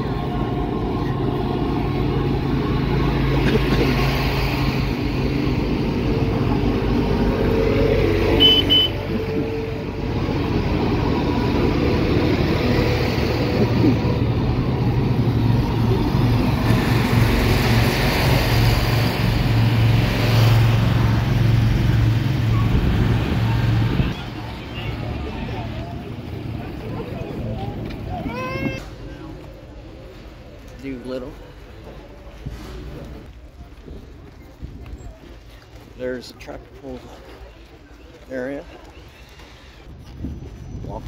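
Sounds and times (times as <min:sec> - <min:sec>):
vehicle engines running: 0:00.0 - 0:41.0.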